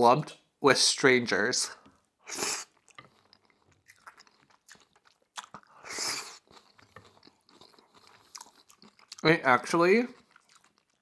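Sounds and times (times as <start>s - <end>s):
close chewing with wet mouth clicks: 2.3s - 9.3s, 10.1s - 11.0s.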